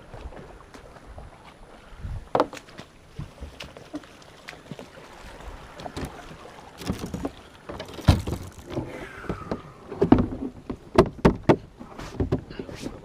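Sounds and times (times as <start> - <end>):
wind: 0.0 - 13.0
paddle knocking against kayak hull: 6.8 - 12.5.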